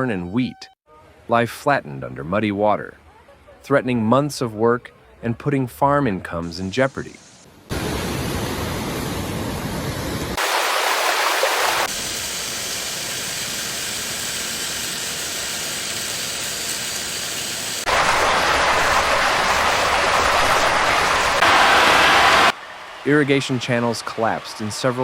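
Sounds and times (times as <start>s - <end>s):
floodwater rushing: 10.4s - 11.9s, 17.8s - 25.0s.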